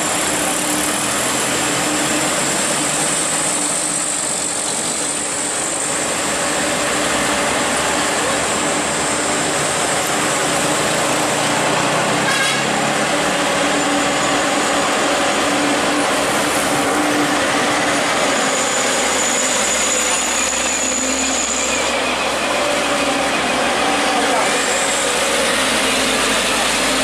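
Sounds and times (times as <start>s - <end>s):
trucks passing on road: 0.0s - 27.0s.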